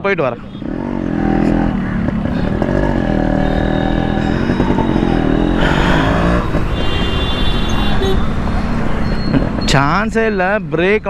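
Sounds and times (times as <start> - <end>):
motorcycle engine revving: 0.5 - 8.8.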